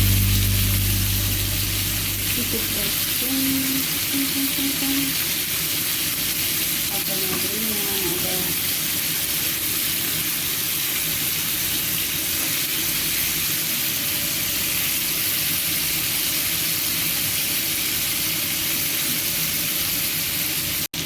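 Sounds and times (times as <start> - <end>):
chicken wings sizzling in oil: 0.0 - 21.0.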